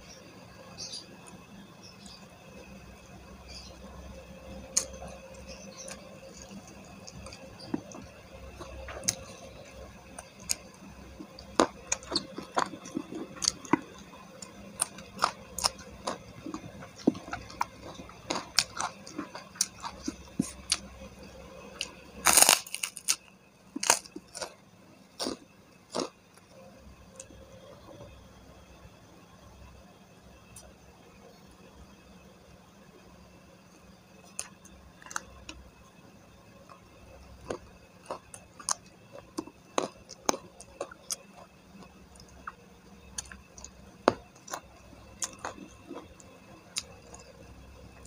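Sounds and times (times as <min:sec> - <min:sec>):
crunchy chewing and mouth clicks: 0:03.5 - 0:24.6, 0:25.2 - 0:27.9, 0:34.2 - 0:35.7, 0:36.6 - 0:48.0.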